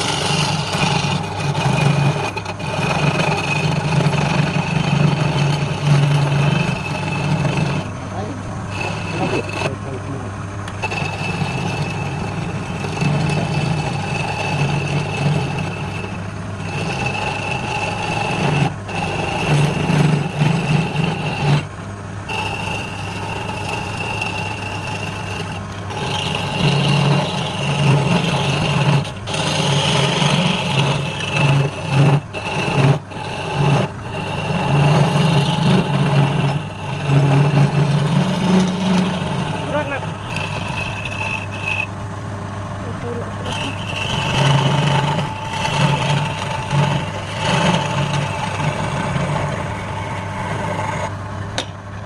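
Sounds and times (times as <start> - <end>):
tool cutting spinning wood: 0.0 - 51.8
wood lathe motor hum and whine: 0.0 - 52.0.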